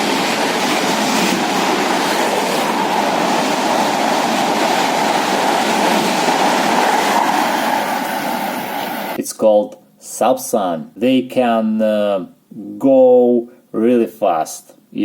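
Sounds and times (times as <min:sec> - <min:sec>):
train wheels rumbling on rail: 0:00.0 - 0:09.2.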